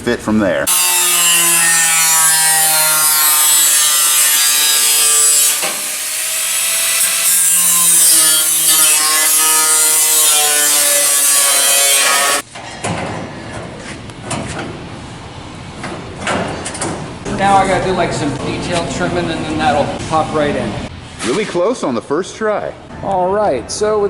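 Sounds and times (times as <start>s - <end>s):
power tool cutting sheet steel: 0.7s - 12.5s.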